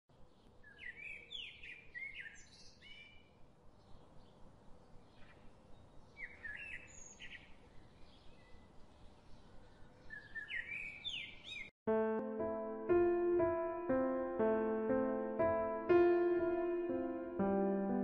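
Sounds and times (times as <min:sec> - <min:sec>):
bird chirping: 0:00.1 - 0:11.7.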